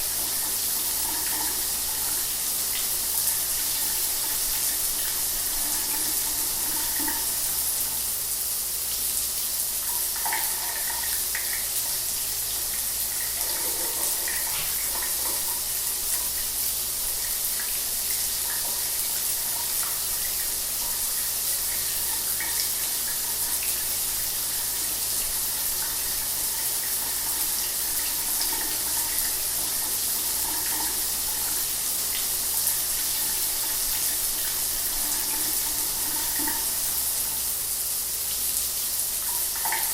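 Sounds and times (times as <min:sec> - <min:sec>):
shower water running: 0:00.0 - 0:39.9.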